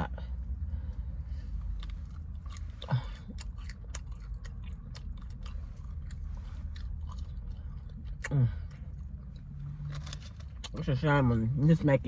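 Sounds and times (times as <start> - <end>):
low hum: 0.0 - 10.7
person chewing wetly: 1.5 - 10.8.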